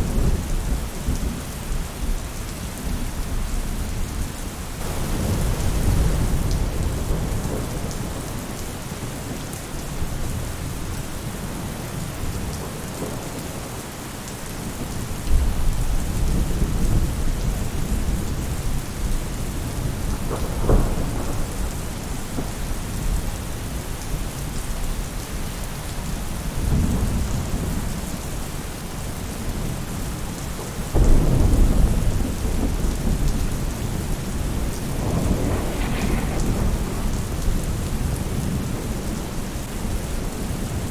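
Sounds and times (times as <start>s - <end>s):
rain falling on a roof: 0.0s - 40.9s
thunder rolling: 4.8s - 8.6s, 19.6s - 23.6s, 30.9s - 40.2s.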